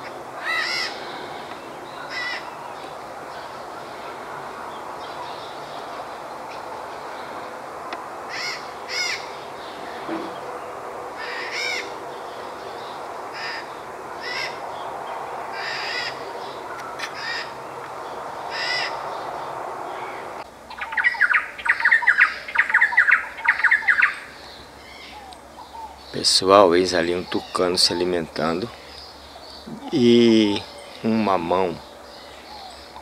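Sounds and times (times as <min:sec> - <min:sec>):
birds calling: 0:00.0 - 0:33.0
harsh rapid bird calls: 0:15.6 - 0:33.0.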